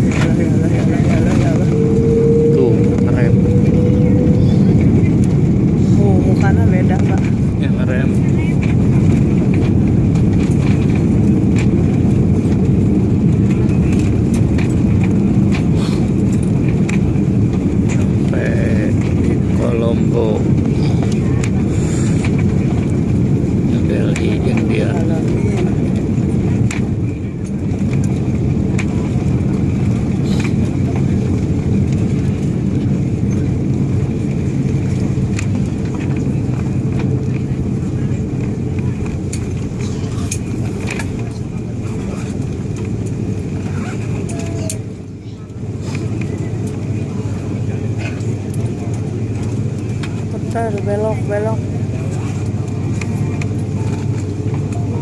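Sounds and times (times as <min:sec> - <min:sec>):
high whine: 0:00.0 - 0:28.2
airliner cabin rumble: 0:00.0 - 0:55.0
faint high whine: 0:00.5 - 0:05.3.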